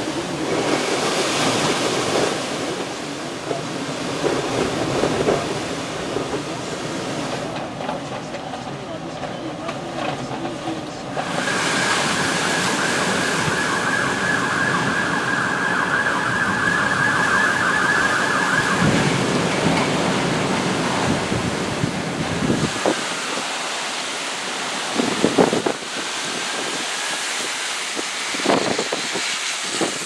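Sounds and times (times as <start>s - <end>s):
strong wind rushing: 11.2s - 23.8s, 24.6s - 30.0s
high wavering wind whistle: 11.3s - 19.6s.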